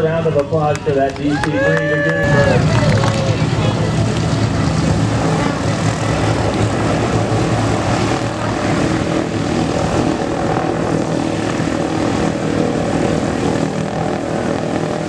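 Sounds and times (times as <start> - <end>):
airliner propeller engines running: 0.0 - 15.0.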